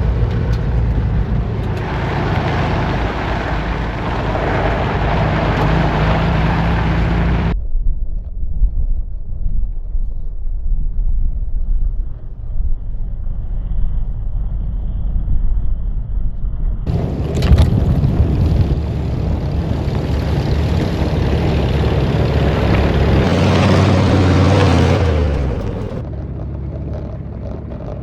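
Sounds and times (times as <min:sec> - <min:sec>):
wind on microphone: 0:00.0 - 0:26.0
vehicle engine rumble: 0:00.0 - 0:28.0.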